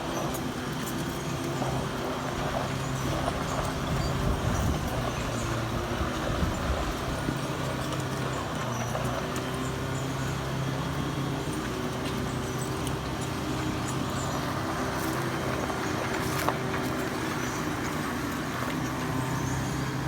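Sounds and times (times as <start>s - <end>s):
heavy vehicle engine running: 0.0s - 20.0s.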